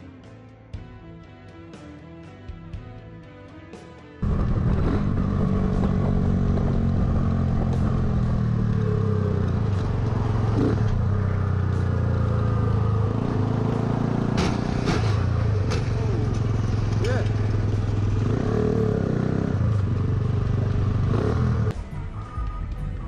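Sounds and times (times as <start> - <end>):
motor vehicle engine running: 4.2 - 21.8.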